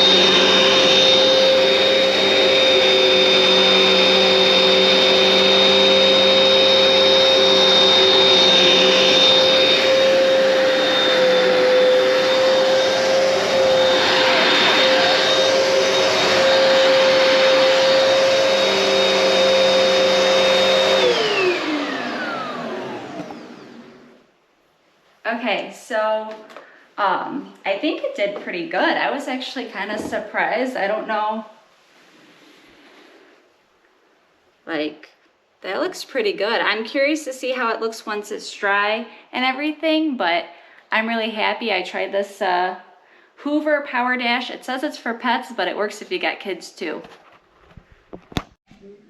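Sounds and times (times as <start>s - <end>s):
motor spinning down: 0.0s - 24.2s
carpet cleaner whining: 0.0s - 24.3s.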